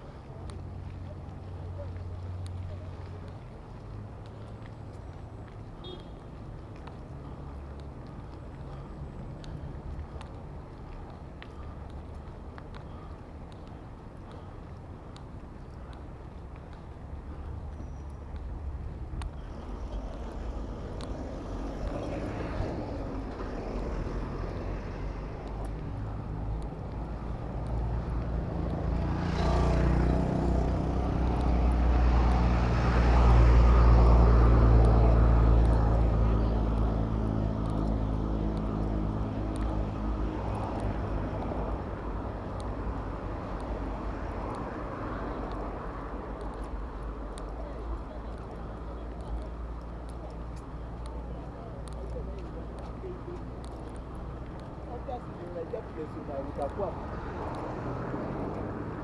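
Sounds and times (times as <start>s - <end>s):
large vehicle engine droning: 17.1s - 59.0s
steady low rumble: 18.3s - 28.9s.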